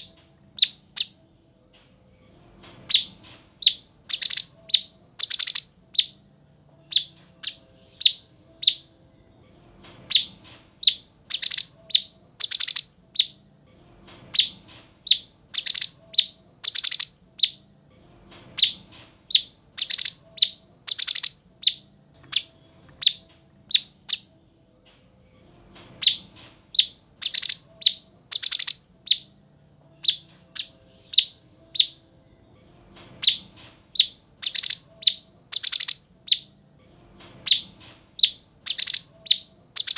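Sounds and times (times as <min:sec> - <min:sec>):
songbird chirping: 0:00.0 - 0:01.3, 0:02.8 - 0:06.2, 0:06.8 - 0:13.4, 0:14.2 - 0:17.7, 0:18.5 - 0:24.4, 0:25.9 - 0:36.6, 0:37.4 - 0:39.9.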